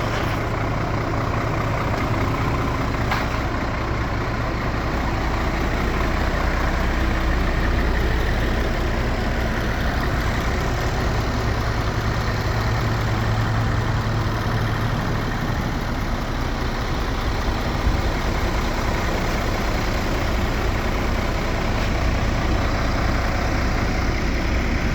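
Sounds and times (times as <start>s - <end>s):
diesel engine idling: 0.0s - 24.9s.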